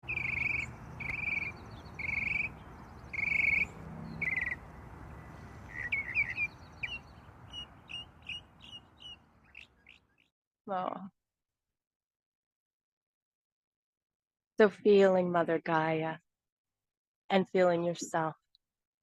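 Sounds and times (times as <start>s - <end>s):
birds calling: 0.0s - 10.2s
bird chirps: 0.0s - 10.3s.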